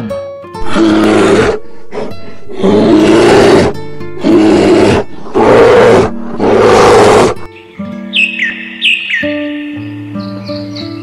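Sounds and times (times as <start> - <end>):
background music: 0.0 - 11.0
large animal roaring: 0.6 - 7.5.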